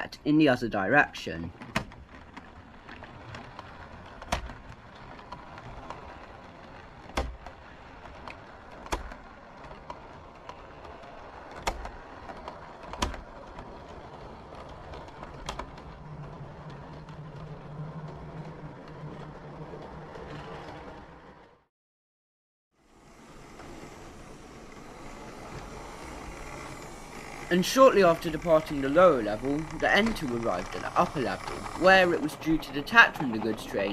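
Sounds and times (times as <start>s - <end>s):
model train rolling rumble: 0.0s - 21.6s, 22.8s - 33.9s
low motor hum: 23.3s - 33.9s.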